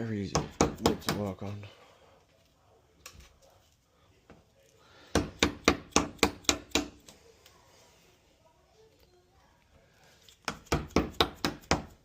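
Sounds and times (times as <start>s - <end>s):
hammer striking wood chisel: 0.3s - 1.4s, 5.1s - 7.0s, 10.4s - 12.0s.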